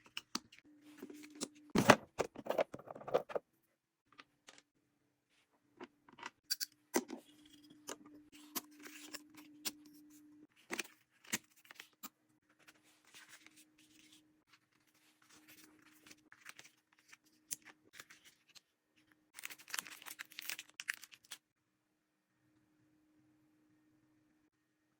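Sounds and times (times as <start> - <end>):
packaging rustling: 19.4 - 21.4.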